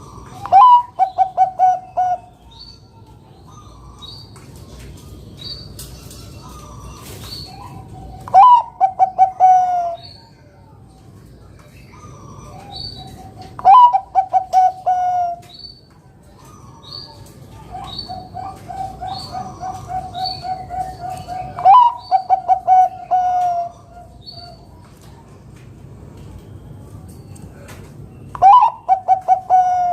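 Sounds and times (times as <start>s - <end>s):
dove cooing: 0.0s - 2.4s, 6.3s - 10.2s, 12.0s - 15.4s, 16.4s - 24.7s, 28.4s - 29.9s.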